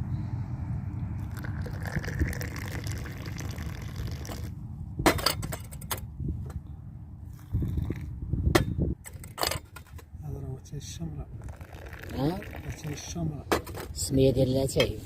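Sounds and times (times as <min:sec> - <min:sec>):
tea pouring into glass: 0:01.2 - 0:04.5, 0:11.5 - 0:13.1.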